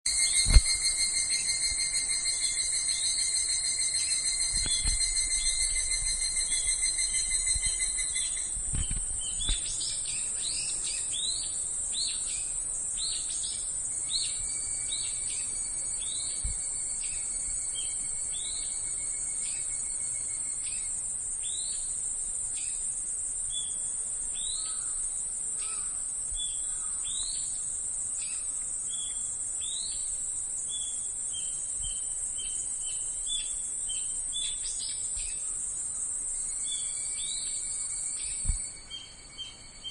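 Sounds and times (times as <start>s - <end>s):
cicadas buzzing: 0.1s - 39.9s
birds chirping: 4.0s - 18.7s.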